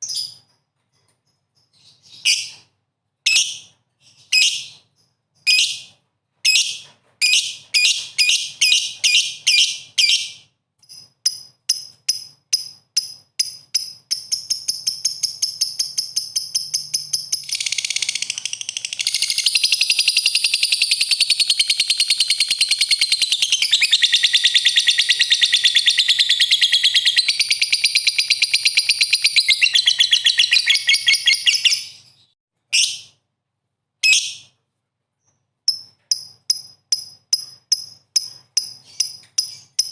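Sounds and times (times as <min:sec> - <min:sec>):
songbird singing: 0:13.4 - 0:33.0.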